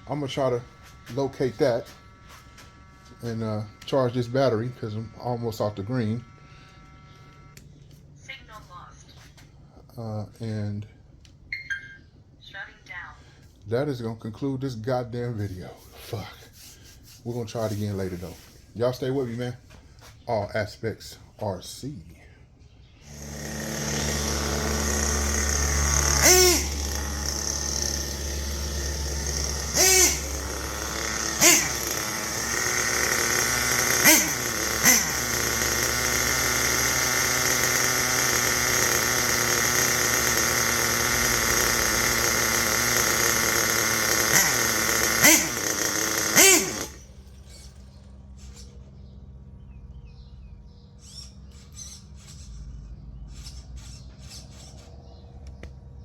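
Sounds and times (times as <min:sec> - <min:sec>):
small engine at high revs: 0:00.0 - 0:07.6, 0:23.0 - 0:49.5, 0:50.9 - 0:56.0.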